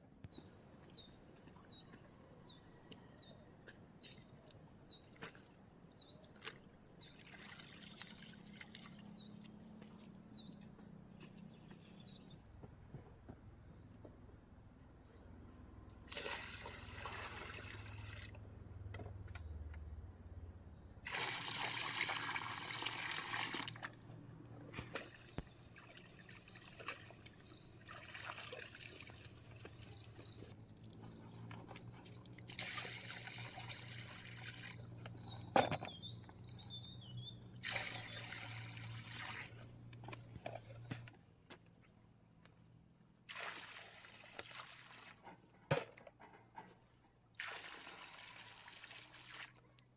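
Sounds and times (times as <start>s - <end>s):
water pouring in spurts: 7.1s - 10.2s, 16.0s - 18.4s, 21.0s - 24.2s, 24.8s - 35.0s, 37.6s - 39.6s, 43.3s - 45.3s, 47.4s - 49.6s
bird chirps: 25.2s - 26.8s, 34.8s - 37.6s.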